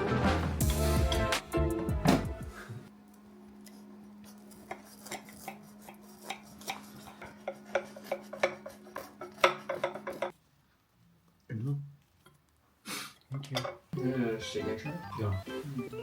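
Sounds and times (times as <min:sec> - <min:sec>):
dishes and cutlery clinking: 0:04.5 - 0:10.3, 0:13.5 - 0:13.9.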